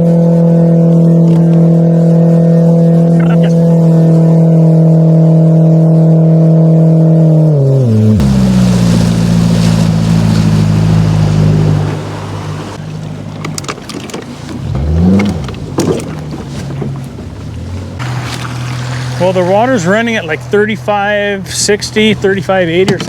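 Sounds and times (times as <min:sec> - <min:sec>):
outboard motor running: 0:00.0 - 0:23.0
water rushing past: 0:07.4 - 0:23.0.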